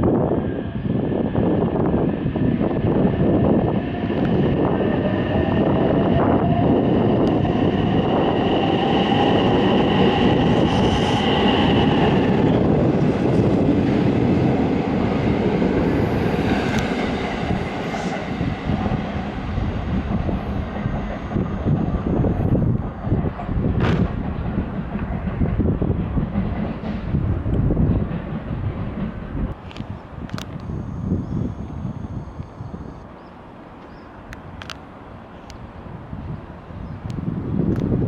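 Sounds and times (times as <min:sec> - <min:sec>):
high whine: 0:00.0 - 0:23.6, 0:29.5 - 0:33.3
train wheels rumbling: 0:00.1 - 0:30.6.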